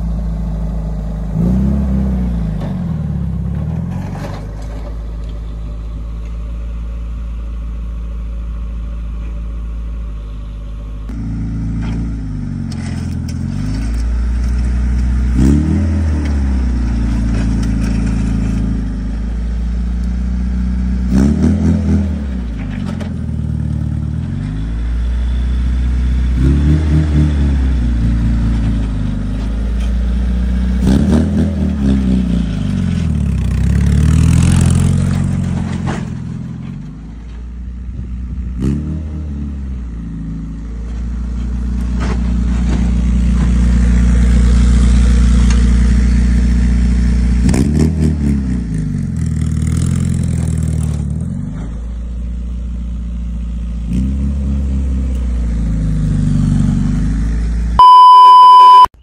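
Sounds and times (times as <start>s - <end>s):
car engine revving: 10.4s - 36.6s.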